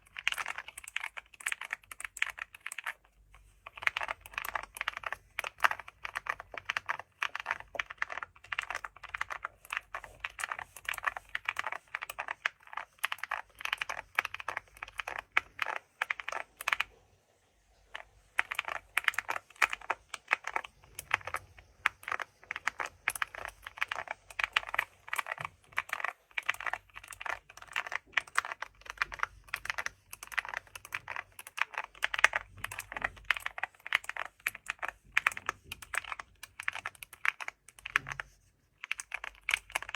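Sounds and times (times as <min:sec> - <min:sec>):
keyboard typing: 0:00.0 - 0:17.0, 0:17.8 - 0:39.9.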